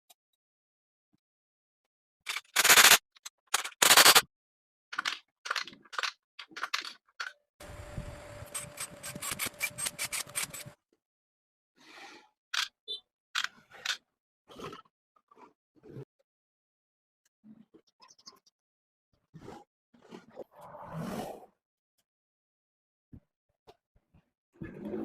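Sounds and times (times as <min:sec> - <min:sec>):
steady hum with rapid ticking: 0:07.6 - 0:10.8.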